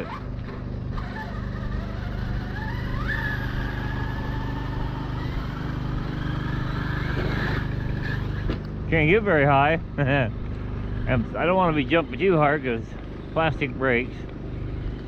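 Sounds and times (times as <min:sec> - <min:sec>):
toy truck electric motor whining: 0:00.0 - 0:08.7, 0:10.8 - 0:15.0.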